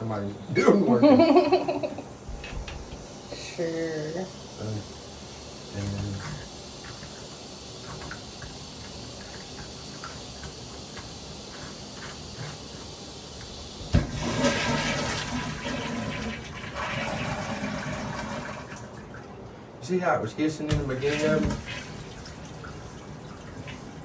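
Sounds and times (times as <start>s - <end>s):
toilet valve hissing: 0.0s - 18.8s, 20.7s - 24.0s
toilet flush water rushing: 0.0s - 19.3s, 20.7s - 24.0s
valve opening thump: 2.2s - 3.1s.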